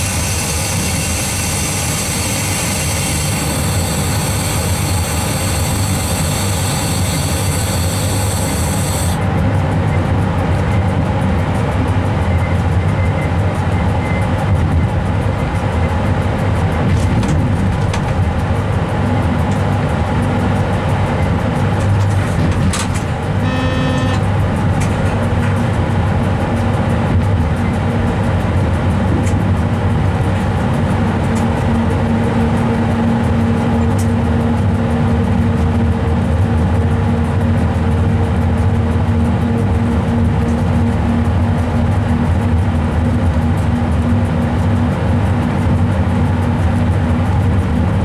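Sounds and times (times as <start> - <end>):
high-pitched whine: 0.0 - 48.0
train wheels rumbling: 0.0 - 48.0
brief higher tone: 23.4 - 24.3.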